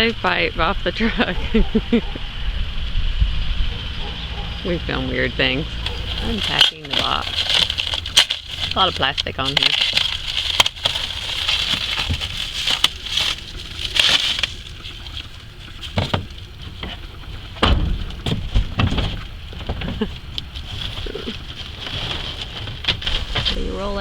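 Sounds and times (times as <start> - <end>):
plastic wrapping crinkling: 5.8 - 23.5
dull knocks: 5.8 - 23.6.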